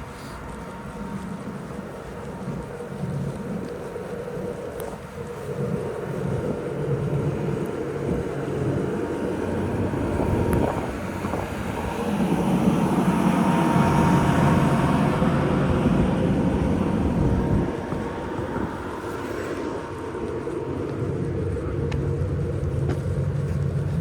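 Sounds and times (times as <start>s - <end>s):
large vehicle passing: 6.6s - 24.0s.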